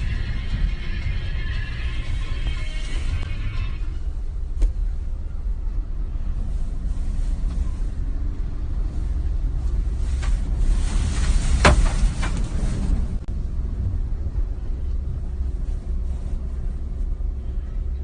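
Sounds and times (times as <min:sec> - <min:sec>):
storm wind buffeting microphone: 0:04.0 - 0:18.0.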